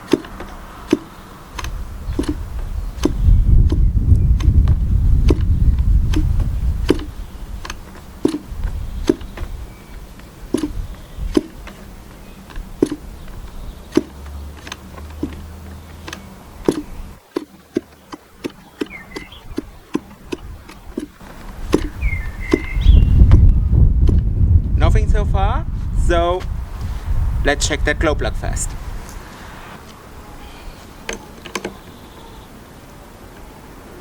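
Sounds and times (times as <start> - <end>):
propeller flipped clicking: 0.0 - 25.2
low wind rumble: 0.0 - 31.4.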